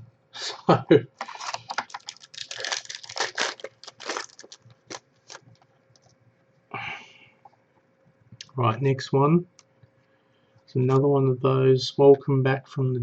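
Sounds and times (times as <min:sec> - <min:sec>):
crackling clicks and rustles: 0:01.2 - 0:06.7.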